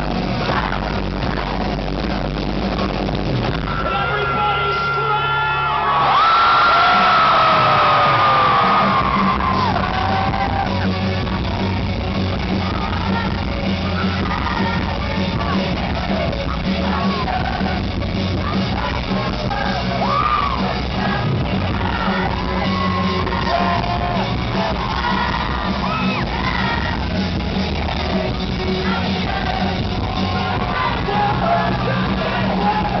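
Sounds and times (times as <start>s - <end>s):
crowd yelling and whooping: 3.4s - 33.0s.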